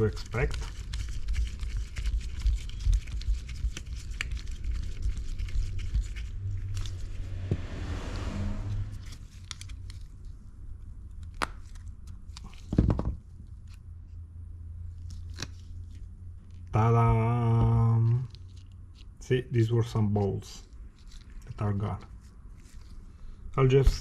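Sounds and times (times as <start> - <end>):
small clicks and scrapes: 17.8 - 19.2, 20.8 - 21.5.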